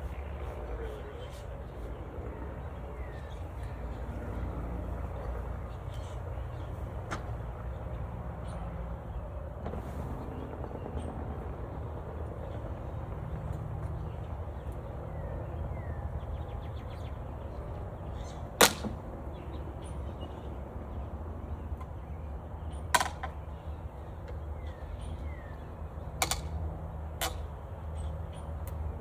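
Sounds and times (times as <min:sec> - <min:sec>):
sharp knocks of hive gear: 0:18.6 - 0:19.0.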